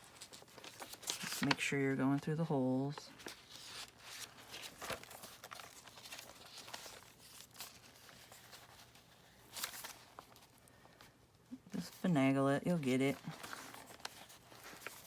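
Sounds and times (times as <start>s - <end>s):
paper rustling: 0.0s - 11.2s, 11.8s - 15.0s.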